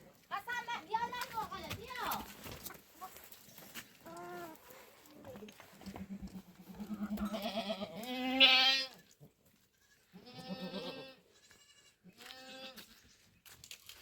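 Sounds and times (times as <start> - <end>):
goats bleating: 5.8 - 9.0, 9.8 - 12.9.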